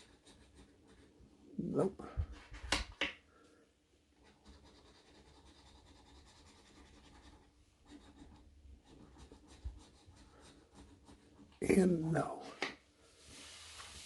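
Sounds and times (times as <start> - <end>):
scratching lottery ticket: 0.0 - 1.2, 4.3 - 11.9.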